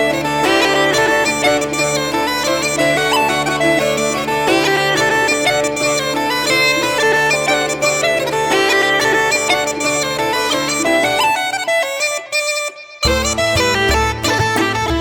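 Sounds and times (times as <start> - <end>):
bagpipes playing: 0.0 - 15.0.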